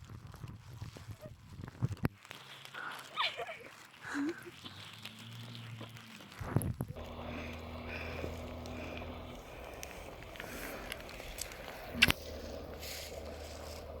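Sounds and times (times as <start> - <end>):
footsteps on wet ground: 2.1 - 14.0
steady low hum: 6.9 - 14.0.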